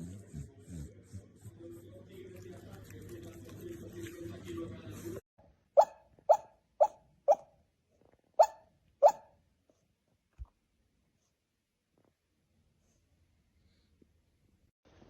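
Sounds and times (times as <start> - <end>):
dog barking: 5.8 - 7.6, 8.4 - 9.4.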